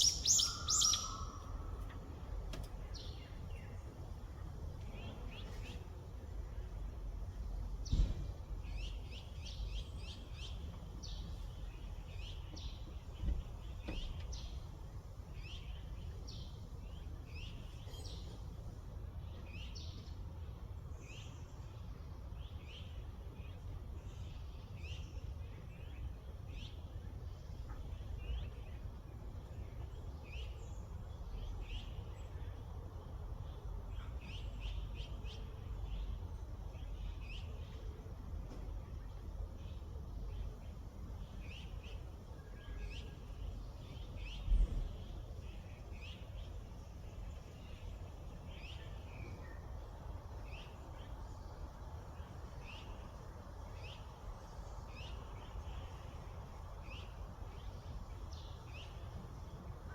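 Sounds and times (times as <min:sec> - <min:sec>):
low rumble like wind: 0:00.0 - 0:59.9
songbirds chirping: 0:00.0 - 0:59.9
brief thump: 0:07.8 - 0:08.3.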